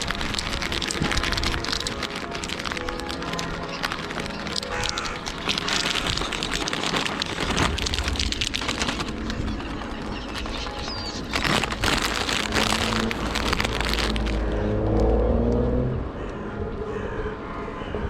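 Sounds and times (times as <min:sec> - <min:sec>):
crackling rustle: 0:00.0 - 0:15.2
car driving past: 0:14.4 - 0:16.4.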